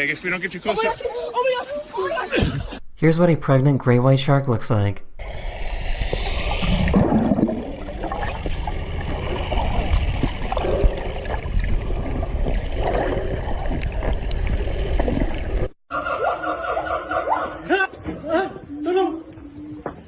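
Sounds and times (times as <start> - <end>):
water sloshing and gurgling: 5.2 - 15.8.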